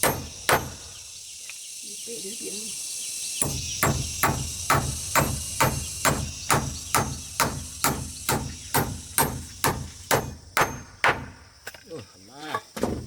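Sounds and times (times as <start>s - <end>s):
hand tool striking rhythmically: 0.0s - 0.9s, 3.4s - 11.4s.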